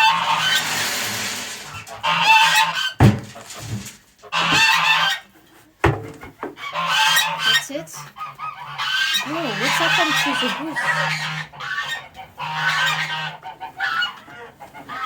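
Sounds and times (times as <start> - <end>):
geese honking: 0.0 - 0.9, 1.7 - 3.0, 4.2 - 5.2, 6.6 - 15.0
sharp knocks: 3.0 - 3.9, 4.5 - 4.8.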